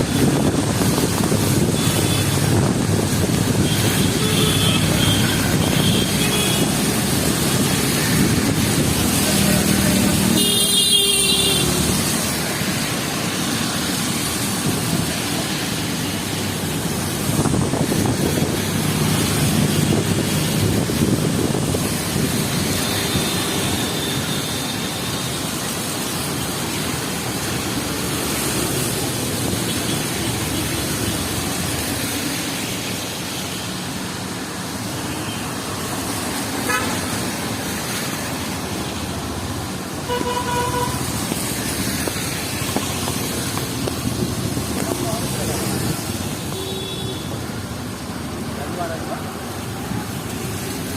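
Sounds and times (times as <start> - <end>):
heavy rain hissing: 0.0 - 50.9
vehicles passing: 0.0 - 50.9
wet road noise: 0.0 - 50.9
car horns tooting: 40.1 - 41.0.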